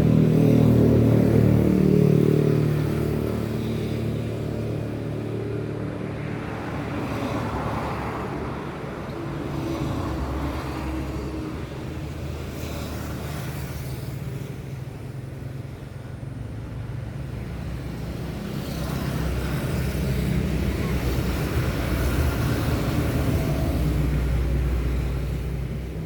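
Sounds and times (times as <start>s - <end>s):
vehicle engine humming: 8.4s - 26.0s.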